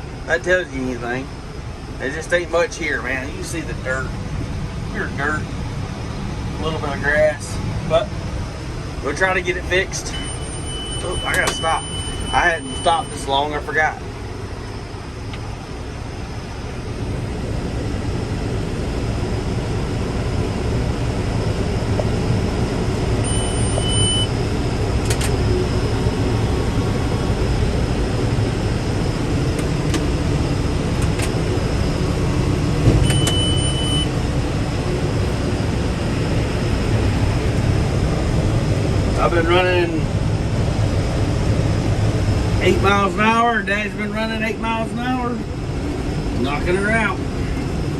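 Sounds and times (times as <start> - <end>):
short high electronic beeps: 23.2 - 24.3
tractor engine and hay baler: 42.6 - 47.9.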